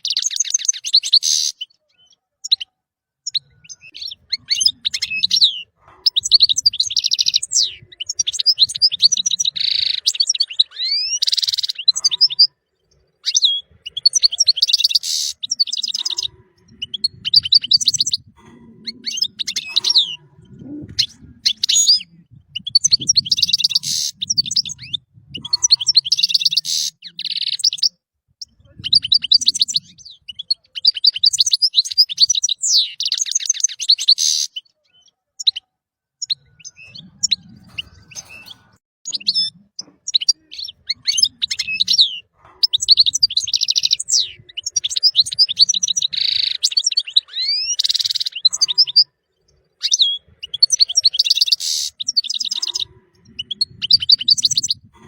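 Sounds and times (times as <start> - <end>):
bird twittering song: 0.0 - 55.0.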